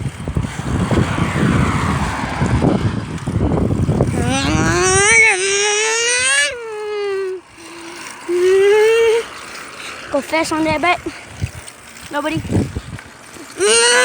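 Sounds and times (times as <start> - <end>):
wind buffeting microphone: 0.0 - 14.0
person calling out: 4.2 - 7.4, 8.3 - 9.3, 13.6 - 14.0.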